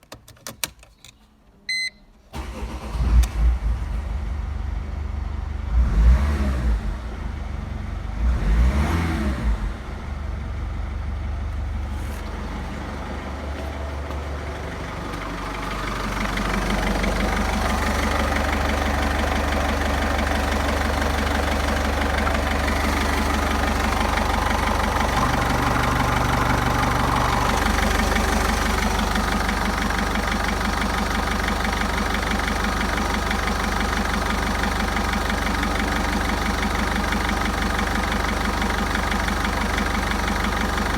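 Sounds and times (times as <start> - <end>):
short beep: 1.7 - 2.1
diesel engine starting and idling: 1.7 - 40.9
diesel engine revving: 2.4 - 40.9.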